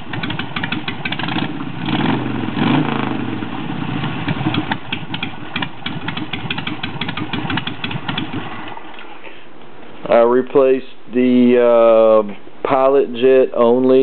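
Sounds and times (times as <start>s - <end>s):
motorcycle engine revving and idling: 0.0s - 8.8s.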